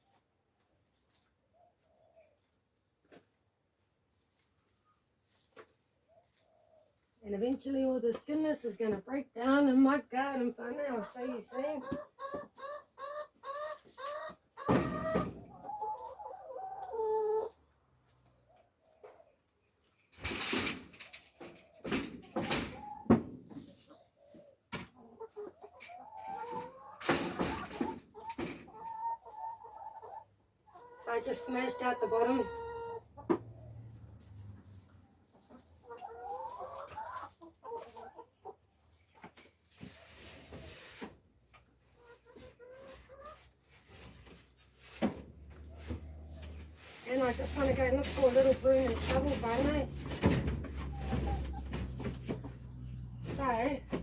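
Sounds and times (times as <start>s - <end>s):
chickens clucking: 0.0s - 54.0s
chicken squawk: 11.4s - 17.5s, 28.8s - 33.7s.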